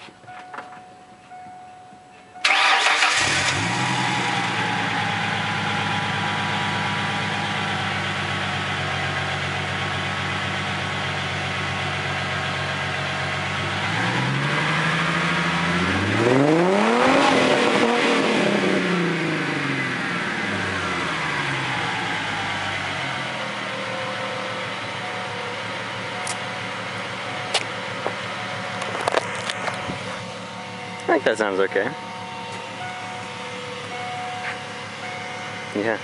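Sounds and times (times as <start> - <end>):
car engine starting and idling: 0.0 - 36.0
engine revving: 2.4 - 25.1.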